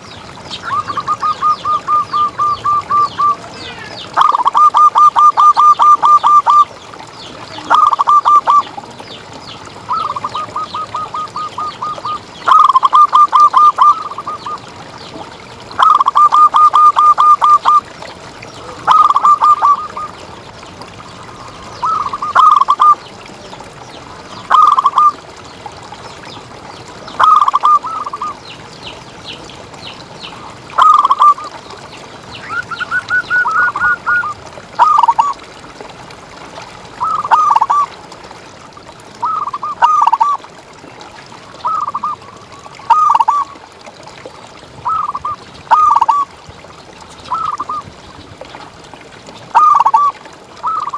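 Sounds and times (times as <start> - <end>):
dove cooing: 0.6 - 6.6, 7.6 - 8.7, 9.9 - 14.5, 15.8 - 17.8, 18.6 - 20.2, 27.2 - 28.4, 32.5 - 35.3, 44.9 - 46.2, 49.6 - 50.9.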